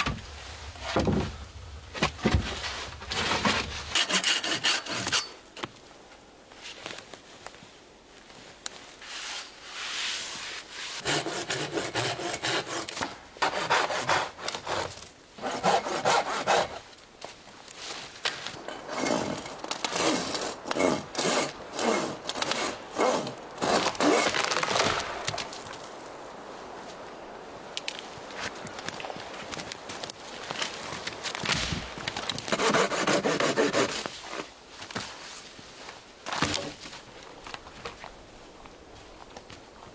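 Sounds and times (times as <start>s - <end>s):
saw cutting through wood: 2.3s - 5.4s, 11.0s - 16.8s, 18.6s - 25.0s, 32.5s - 34.0s.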